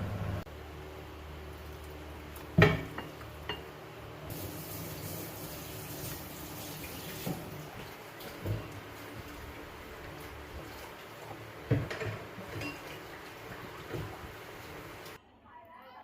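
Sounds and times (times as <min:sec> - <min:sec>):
tap running into sink: 0:05.9 - 0:08.8.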